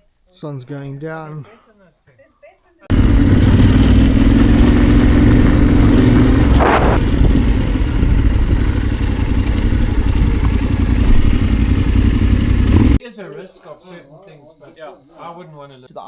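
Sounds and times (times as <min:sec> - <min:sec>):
motorcycle engine running: 0:02.9 - 0:13.0.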